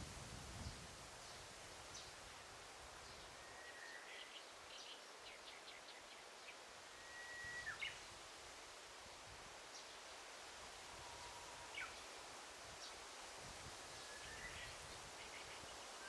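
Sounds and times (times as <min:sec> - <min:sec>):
forest ambience hiss: 0:00.0 - 0:16.0
faint birdsong: 0:00.6 - 0:08.2, 0:10.9 - 0:13.2, 0:14.0 - 0:16.0.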